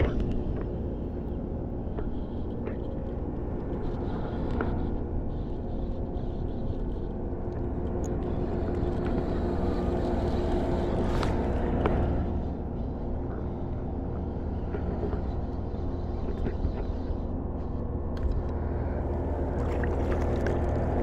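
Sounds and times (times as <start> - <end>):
engine drone: 0.0 - 21.0.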